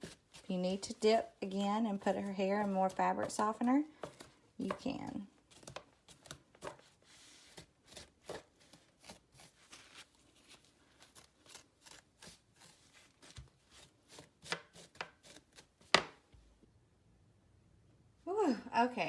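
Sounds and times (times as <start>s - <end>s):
brush scratching through wet hair: 0.0s - 3.7s.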